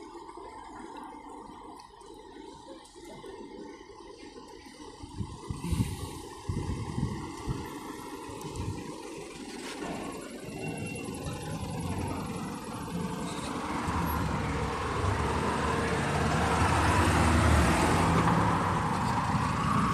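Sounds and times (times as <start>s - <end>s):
large vehicle rumble and tyre hiss: 5.5s - 8.8s, 9.4s - 19.9s.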